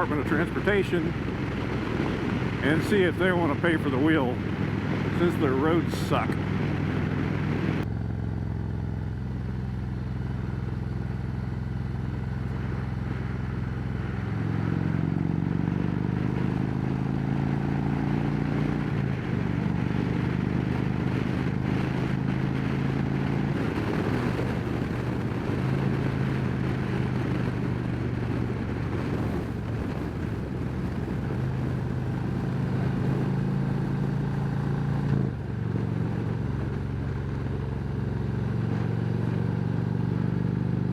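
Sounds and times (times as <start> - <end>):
wind noise: 0.0 - 7.9, 12.5 - 37.1
motorcycle engine at road speed: 0.0 - 40.9.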